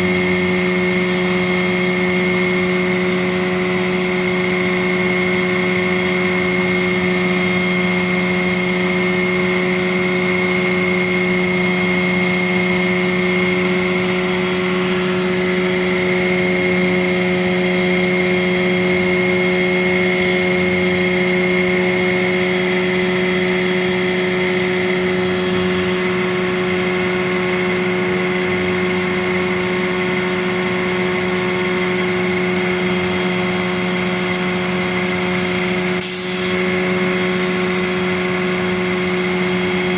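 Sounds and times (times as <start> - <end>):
machinery engine humming with whine: 0.0 - 39.9.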